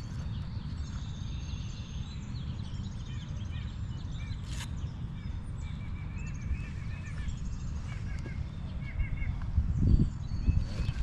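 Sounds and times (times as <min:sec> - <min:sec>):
small birds chirping: 0:00.0 - 0:11.0
wind buffeting microphone: 0:06.3 - 0:11.0.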